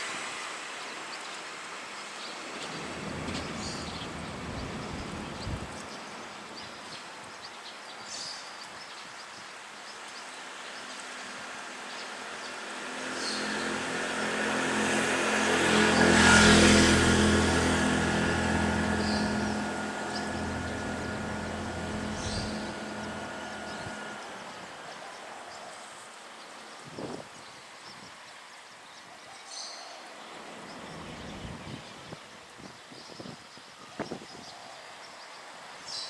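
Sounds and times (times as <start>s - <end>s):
vehicle engine hum passing: 2.4s - 6.5s, 10.7s - 26.0s, 30.2s - 32.2s.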